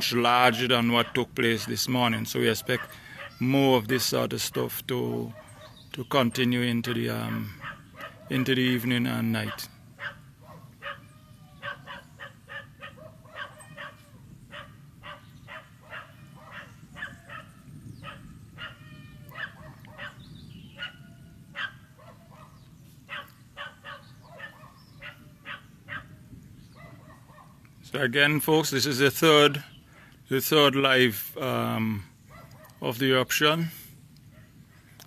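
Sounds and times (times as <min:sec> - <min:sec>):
dog barking: 0:02.6 - 0:03.4, 0:05.3 - 0:05.8, 0:07.3 - 0:08.5, 0:09.4 - 0:20.2, 0:20.8 - 0:26.2, 0:26.8 - 0:27.6, 0:32.3 - 0:32.8.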